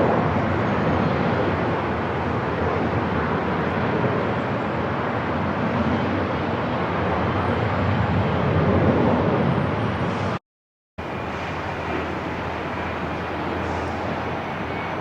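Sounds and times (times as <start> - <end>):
continuous rumble and hiss: 11.0 - 15.0.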